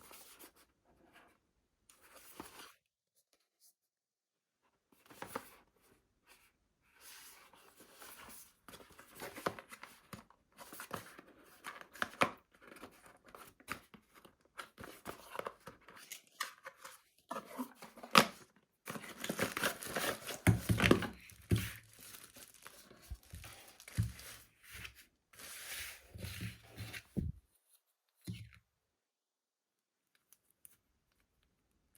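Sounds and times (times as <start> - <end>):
plastic and paper crinkling and tearing: 14.8 - 27.0.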